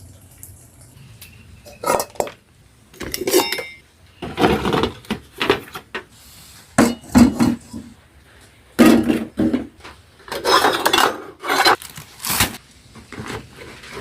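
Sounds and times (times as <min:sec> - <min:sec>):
dishes and utensils clattering: 0:01.2 - 0:02.4, 0:03.0 - 0:05.9, 0:06.8 - 0:08.0, 0:08.8 - 0:11.8.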